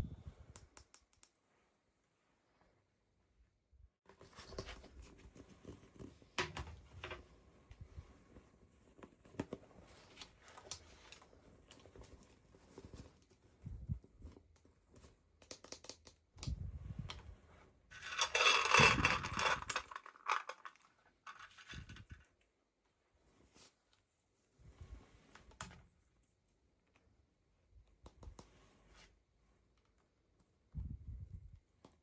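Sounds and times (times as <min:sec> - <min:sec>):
packaging clicks and rustles: 0:18.0 - 0:22.2.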